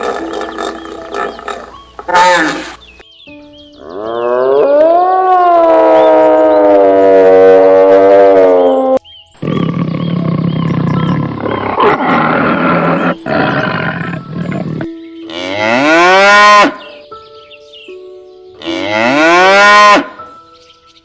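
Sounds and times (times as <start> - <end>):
cattle mooing: 0.0 - 3.0, 9.5 - 16.8, 18.6 - 20.2.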